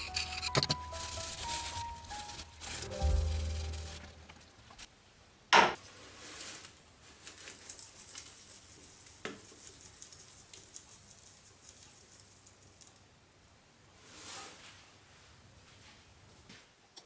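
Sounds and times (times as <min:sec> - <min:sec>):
metal parts clanking: 0:00.0 - 0:01.2.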